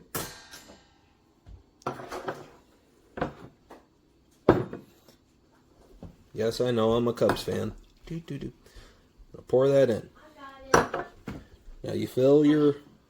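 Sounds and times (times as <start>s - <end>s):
items knocking on a counter: 1.4s - 5.0s, 10.7s - 11.5s
kitchen items clinking: 1.8s - 5.2s, 6.9s - 8.3s, 10.7s - 11.6s.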